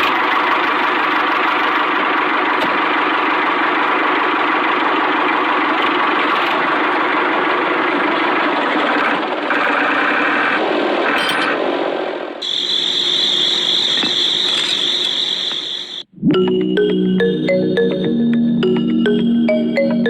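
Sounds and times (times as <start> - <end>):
tractor engine idling: 0.0 - 9.7.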